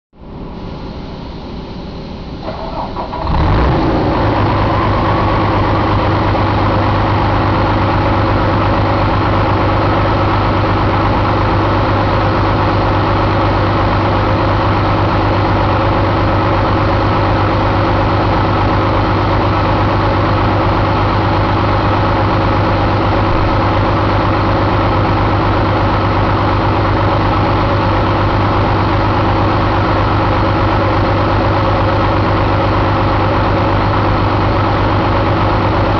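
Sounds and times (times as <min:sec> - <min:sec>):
diesel engine starting and idling: 0:00.2 - 0:35.9.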